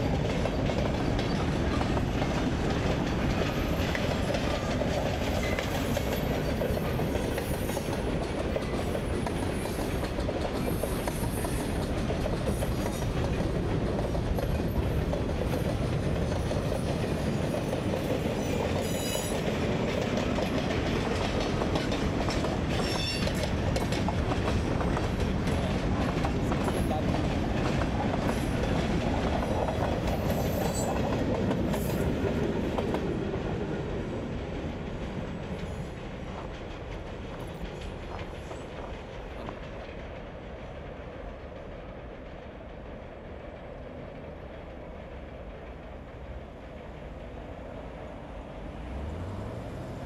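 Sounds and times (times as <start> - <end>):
wheels clicking over rail joints: 0.0 - 33.7
freight train cars rolling: 0.0 - 50.0.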